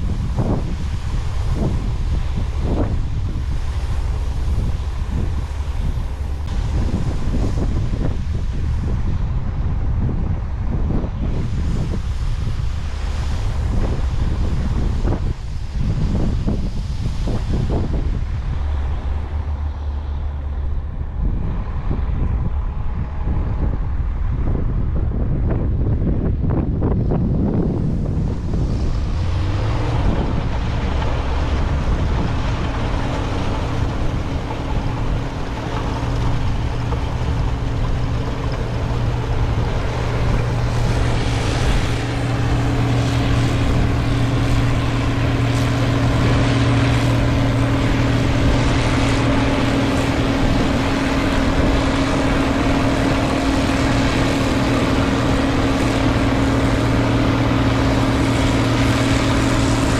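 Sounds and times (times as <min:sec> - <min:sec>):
diesel machinery engine hum: 0:00.0 - 0:59.9.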